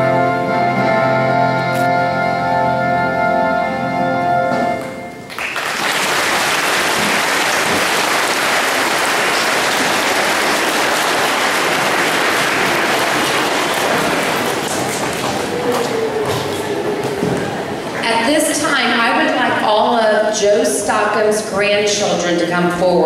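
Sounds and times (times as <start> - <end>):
held musical chord: 0.0 - 5.3
audience applause: 5.3 - 18.0.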